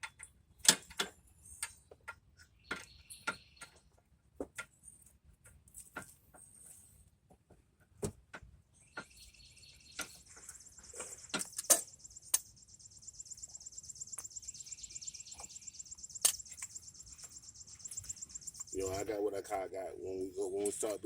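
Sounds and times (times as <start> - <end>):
insects trilling: 10.0 - 21.0
hand tools clicking on metal: 15.3 - 16.8.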